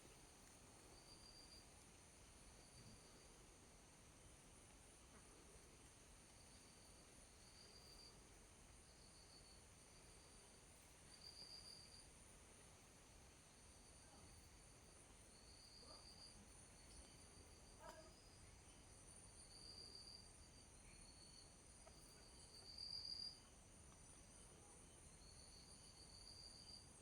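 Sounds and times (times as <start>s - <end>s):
lower insect trill: 0.9s - 1.9s, 6.4s - 12.4s, 13.5s - 27.0s
high-pitched insect trills: 1.0s - 1.7s, 11.1s - 12.1s, 15.2s - 23.5s.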